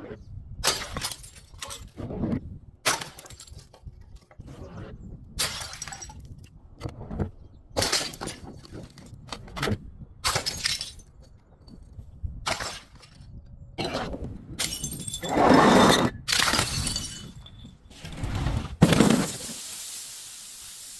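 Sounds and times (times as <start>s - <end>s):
glass breaking and crunching: 0.7s - 1.9s, 10.3s - 11.1s, 14.6s - 15.3s, 16.3s - 17.8s, 18.8s - 19.8s.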